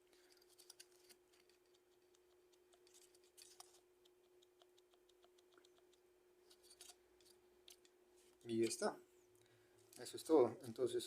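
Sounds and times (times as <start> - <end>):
small clicks and ticks: 0.2 - 8.0.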